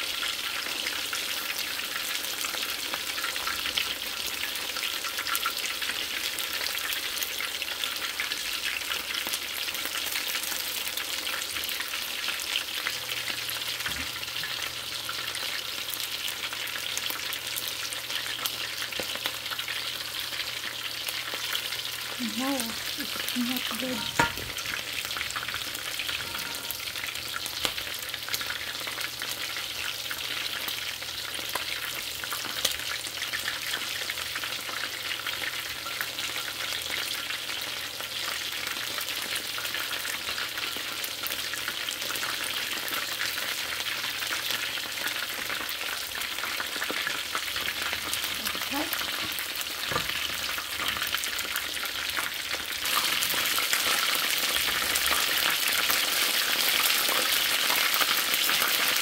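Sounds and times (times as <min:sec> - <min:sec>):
chicken frying in hot oil: 0:00.0 - 0:59.0.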